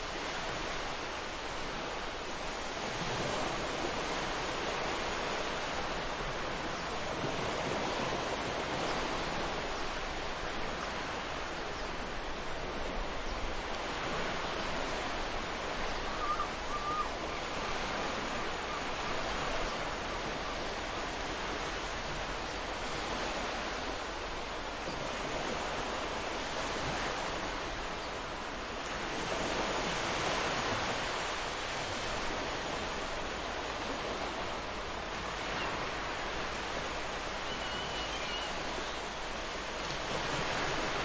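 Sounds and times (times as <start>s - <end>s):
bird call: 16.0s - 17.2s, 37.4s - 38.6s.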